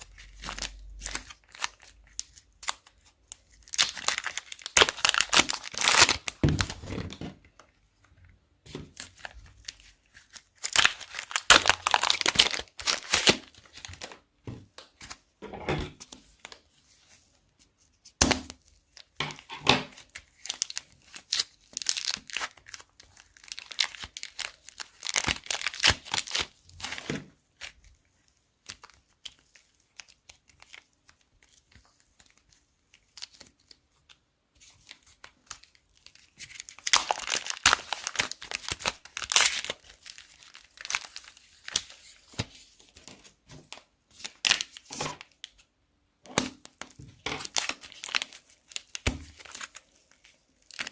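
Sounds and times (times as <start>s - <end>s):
plastic bags crinkling: 0.0s - 7.7s, 8.7s - 14.3s, 18.6s - 28.0s, 34.7s - 45.6s, 46.6s - 50.9s.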